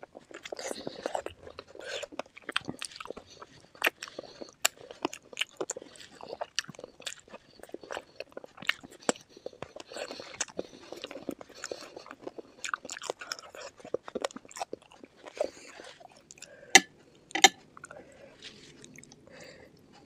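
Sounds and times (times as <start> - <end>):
bones crunching while chewing: 0.0 - 20.0
wet sticky chewing: 0.0 - 20.0.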